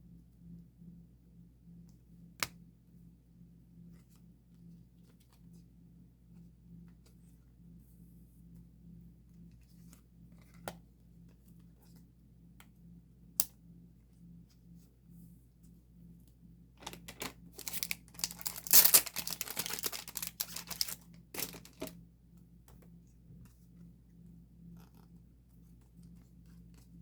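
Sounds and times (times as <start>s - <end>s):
plastic packaging rustling: 16.8s - 21.9s.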